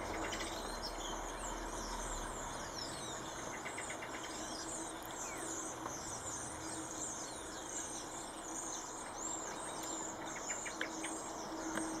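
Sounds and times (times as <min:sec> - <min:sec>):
birds chirping and twittering: 0:00.0 - 0:12.0.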